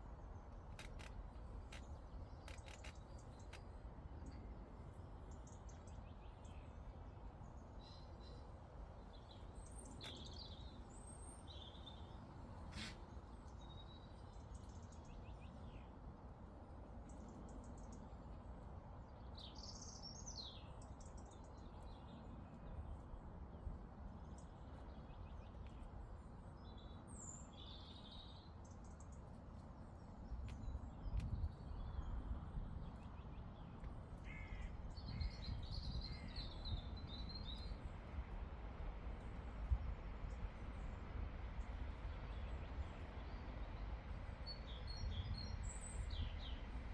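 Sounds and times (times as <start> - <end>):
birdsong chirps and trills: 32.8 - 38.2.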